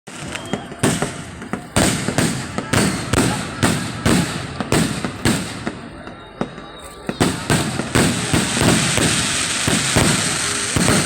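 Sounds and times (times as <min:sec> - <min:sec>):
fireworks bangs: 0:00.1 - 0:11.0
small firework cracks: 0:00.1 - 0:11.0.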